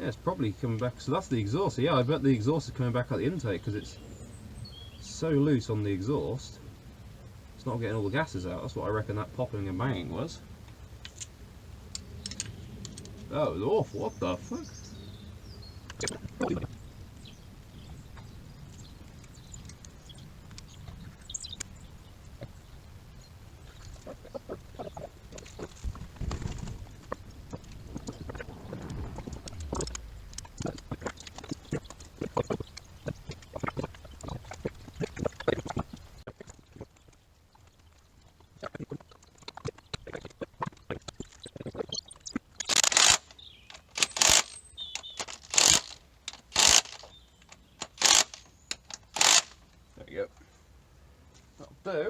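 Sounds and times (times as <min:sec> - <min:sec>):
loud short noisy bursts: 0:42.7 - 0:44.6, 0:45.2 - 0:47.1, 0:47.8 - 0:48.4, 0:49.1 - 0:49.6.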